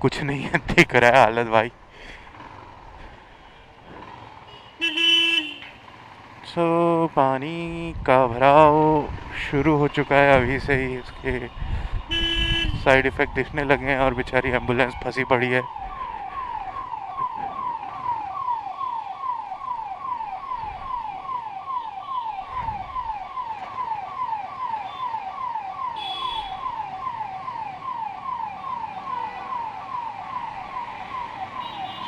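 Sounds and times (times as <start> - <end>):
ambulance siren wailing: 8.6 - 32.0.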